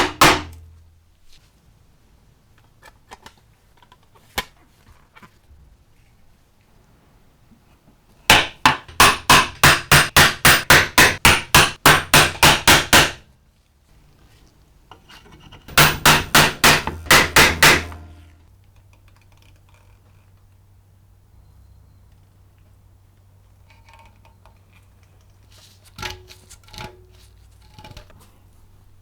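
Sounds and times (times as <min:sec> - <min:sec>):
hammer blows: 0:08.3 - 0:13.2, 0:15.7 - 0:18.4.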